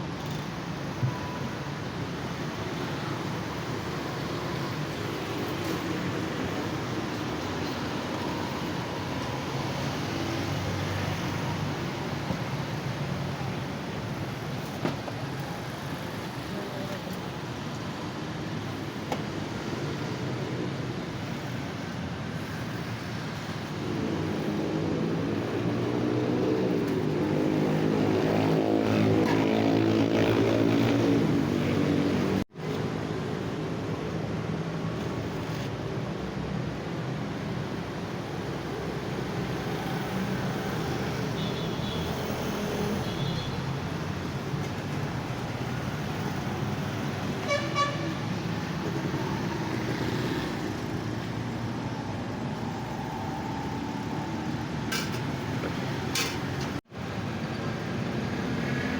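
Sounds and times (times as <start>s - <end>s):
road traffic passing: 0.0s - 58.9s.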